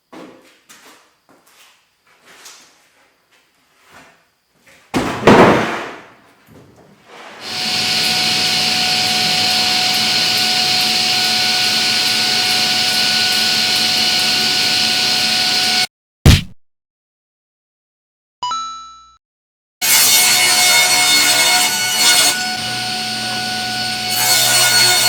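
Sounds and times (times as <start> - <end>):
loud knock: 5.0 - 6.2, 16.3 - 16.6
woodshop machine whining: 7.4 - 15.9, 20.2 - 25.0.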